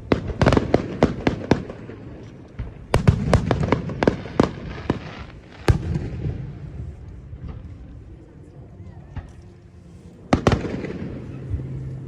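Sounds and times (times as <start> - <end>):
fireworks bangs: 0.0 - 7.6, 10.3 - 11.8
fireworks crackle: 0.0 - 7.6.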